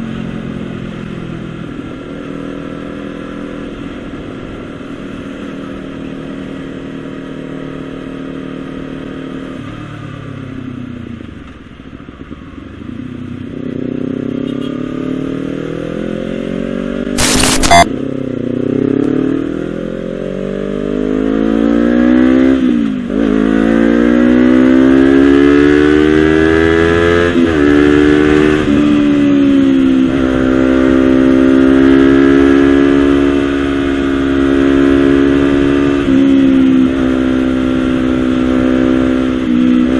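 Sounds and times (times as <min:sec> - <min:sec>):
sharp exhaust crack: 0:17.2 - 0:17.9.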